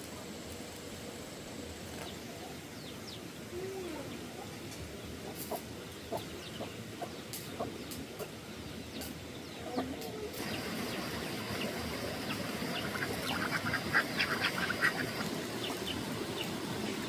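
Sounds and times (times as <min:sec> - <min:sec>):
steady background hiss: 0:00.0 - 0:17.0
chickens clucking: 0:05.2 - 0:08.4, 0:09.0 - 0:17.0.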